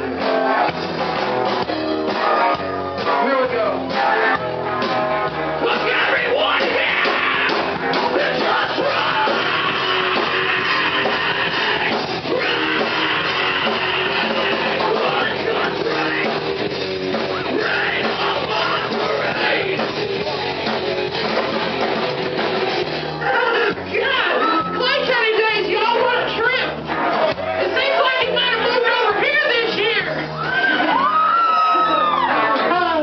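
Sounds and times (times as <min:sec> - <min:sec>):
electric guitar: 0:00.0 - 0:24.8
rock band playing live: 0:00.0 - 0:33.0
person singing and yelling: 0:05.6 - 0:20.0.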